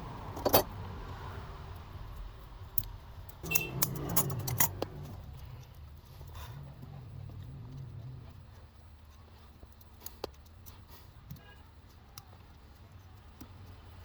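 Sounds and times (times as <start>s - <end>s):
small metal parts clinking: 3.3s - 5.2s.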